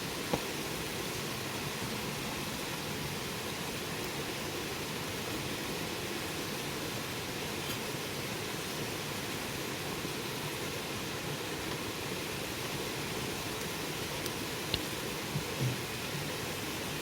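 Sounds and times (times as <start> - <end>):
bonfire burning hiss: 0.0 - 17.0
faint fire pops: 0.2 - 0.6.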